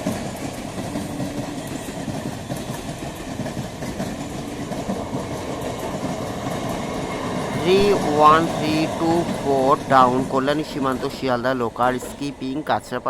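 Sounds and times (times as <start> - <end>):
wheels clattering over rail joints: 0.0 - 7.5
train rumbling past: 0.0 - 13.0.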